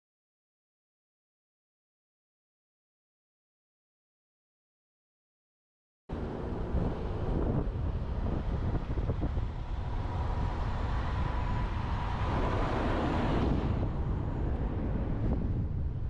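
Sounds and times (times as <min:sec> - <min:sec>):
road rumble: 0:06.1 - 0:16.0
wind buffeting microphone: 0:06.1 - 0:16.0.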